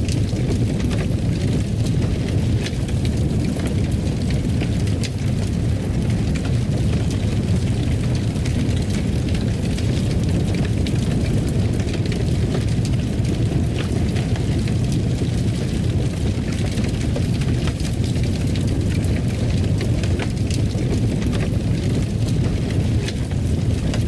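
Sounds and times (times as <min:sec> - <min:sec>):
fire crackling and popping: 0:00.0 - 0:24.0
wood fire roaring: 0:00.0 - 0:24.0.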